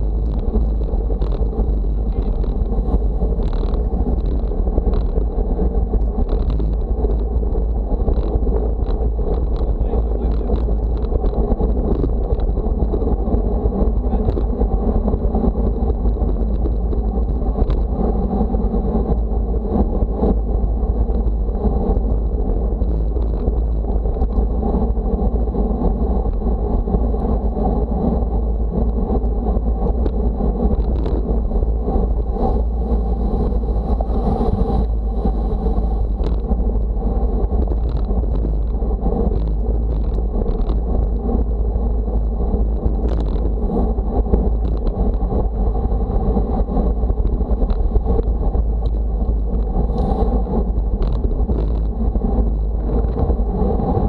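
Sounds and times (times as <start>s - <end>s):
wind buffeting microphone: 0.0s - 54.0s
road noise rushing: 28.2s - 54.0s.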